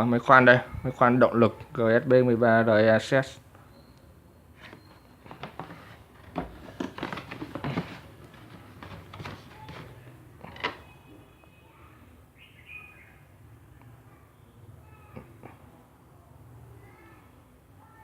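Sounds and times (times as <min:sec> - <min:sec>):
packaging rustling and clicking: 0:04.6 - 0:10.9.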